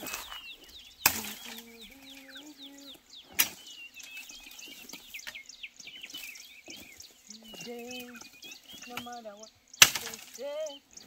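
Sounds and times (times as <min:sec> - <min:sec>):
birds chirping: 0:00.0 - 0:11.0
stick snapping crack: 0:01.0 - 0:01.7, 0:03.3 - 0:03.6, 0:09.8 - 0:10.4.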